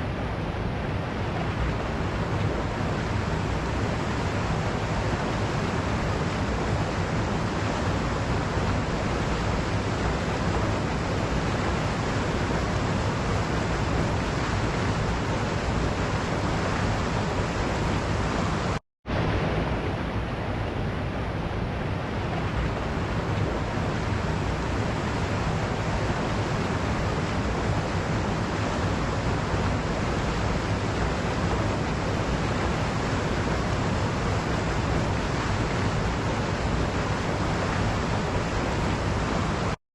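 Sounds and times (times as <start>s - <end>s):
waterfall rushing: 21.8s - 39.8s.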